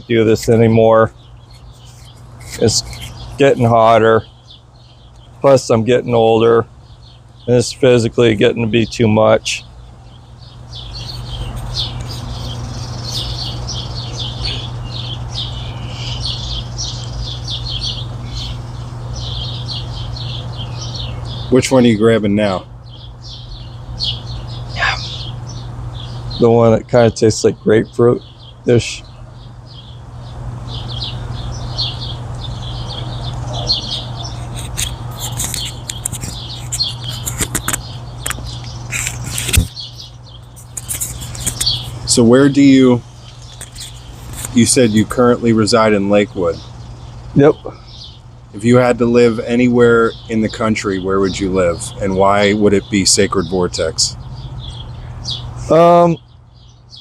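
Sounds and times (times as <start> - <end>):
birds chirping: 0.0 - 57.0
steady low hum: 0.0 - 57.0
sharp clicks: 34.5 - 41.9.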